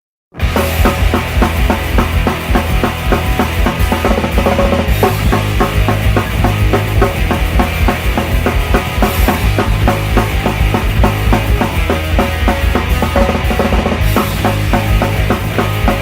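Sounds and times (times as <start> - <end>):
punk rock instrumental: 0.3 - 16.0.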